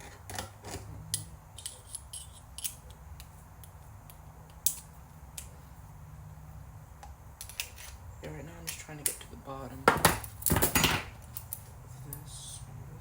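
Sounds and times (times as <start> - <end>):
tool and parts clicking: 0.0 - 5.5
steady low hum: 0.0 - 13.0.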